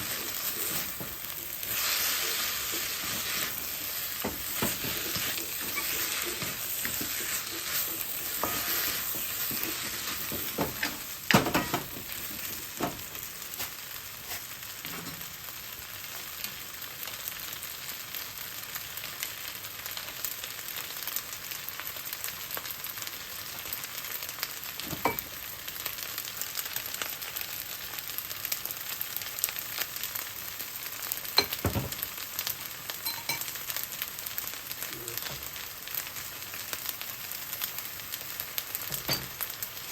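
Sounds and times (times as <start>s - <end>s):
fried rice sizzling in a pan: 0.0s - 39.9s.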